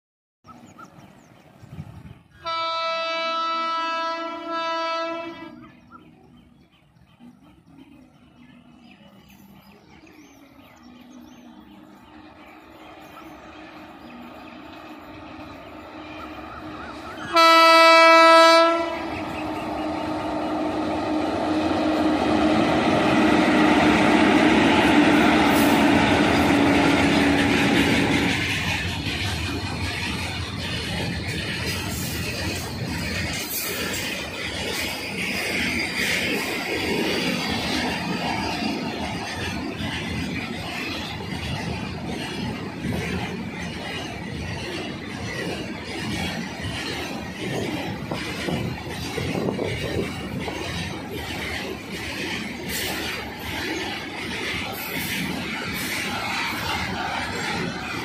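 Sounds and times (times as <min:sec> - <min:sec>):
train wheels and wagons running: 0:00.5 - 0:58.0
train horn blasts: 0:02.4 - 0:05.8, 0:17.2 - 0:19.3.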